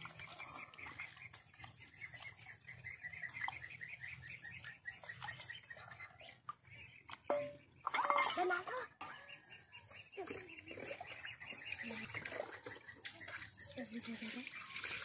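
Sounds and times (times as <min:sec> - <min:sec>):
steel dishes clinking: 0:07.3 - 0:08.6.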